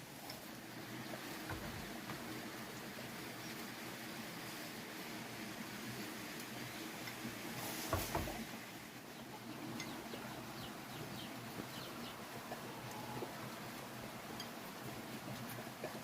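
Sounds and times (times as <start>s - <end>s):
steady outdoor hiss: 0.0s - 16.0s
dull knock: 7.9s - 8.4s.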